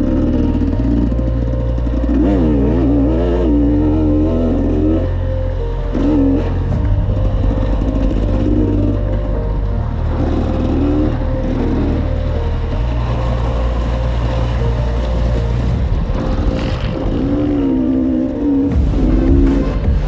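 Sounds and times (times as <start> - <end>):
motorcycle engine revving: 0.0 - 5.2
music with held low notes: 0.0 - 20.0.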